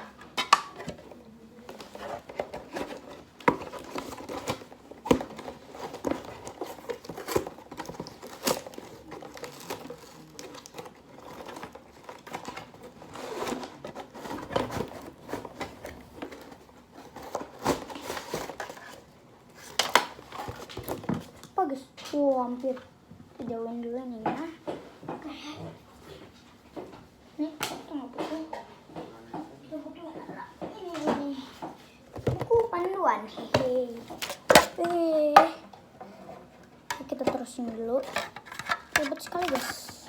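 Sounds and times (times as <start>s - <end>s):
packaging crinkling: 1.6s - 19.0s.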